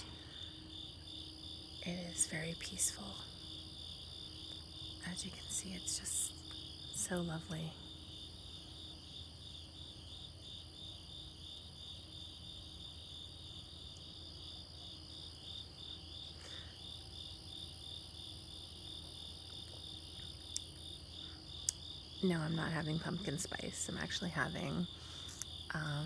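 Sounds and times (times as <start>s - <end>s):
crickets chirping: 0.0s - 26.0s
high-pitched insect trill: 0.0s - 26.0s.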